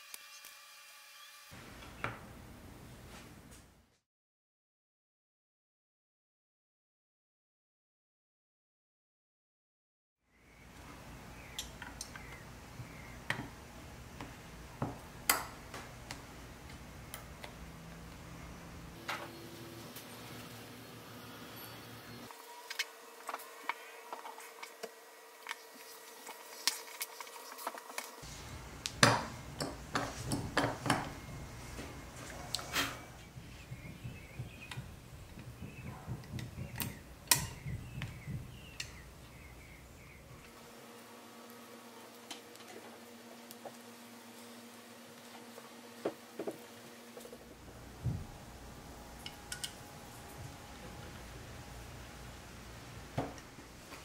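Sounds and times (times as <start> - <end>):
gloves rubbing: 25.4 - 28.6.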